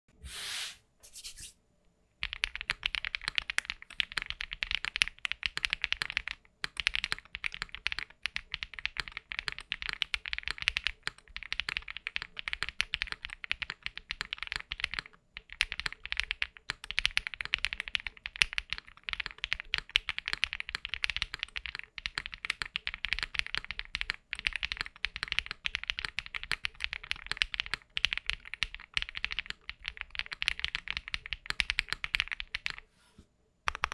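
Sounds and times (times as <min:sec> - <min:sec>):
brief hiss: 0:00.2 - 0:01.6
mechanical keyboard typing: 0:02.2 - 0:32.9, 0:33.7 - 0:33.9.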